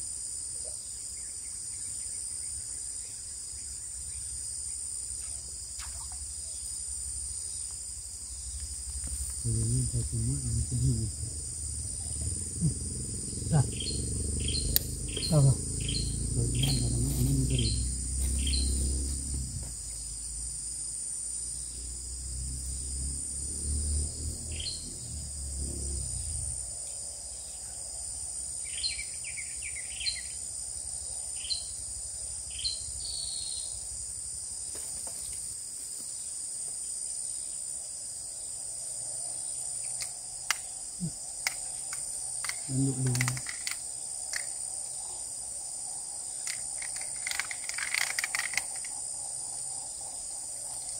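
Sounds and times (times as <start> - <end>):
insects droning: 0.0 - 50.9
low rumble: 8.7 - 20.2
bird chirps: 9.3 - 18.8.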